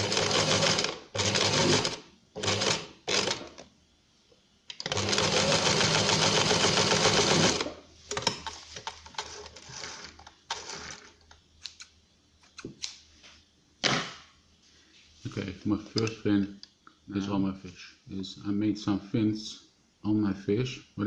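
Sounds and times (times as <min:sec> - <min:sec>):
sewing machine stitching: 0:00.0 - 0:03.6, 0:04.8 - 0:07.7.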